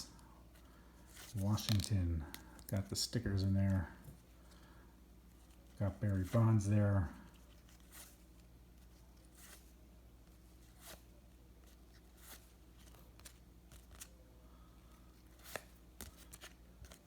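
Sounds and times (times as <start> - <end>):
low steady hum: 0.0 - 17.0
cards clicking and rustling: 0.6 - 4.2, 10.3 - 14.2, 15.2 - 17.0.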